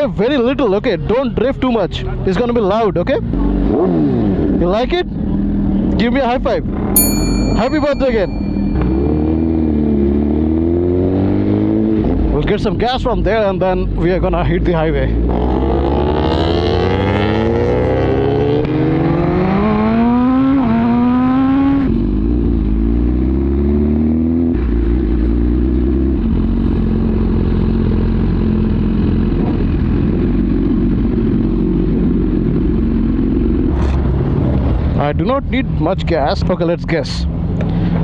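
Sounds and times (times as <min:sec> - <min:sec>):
motorcycle engine accelerating: 0:08.2 - 0:12.6, 0:14.6 - 0:35.8.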